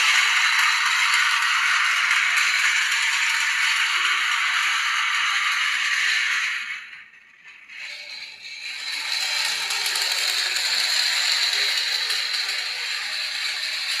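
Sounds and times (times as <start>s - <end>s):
toy train motor whirring: 0.0s - 14.0s.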